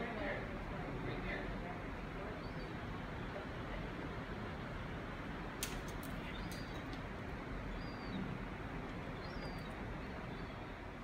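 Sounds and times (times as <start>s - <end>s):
steady background noise: 0.0s - 11.0s
faint high-pitched bird chirps: 2.4s - 2.8s, 6.2s - 7.0s, 7.7s - 8.3s, 9.1s - 10.8s
sharp clicks: 5.6s - 7.0s.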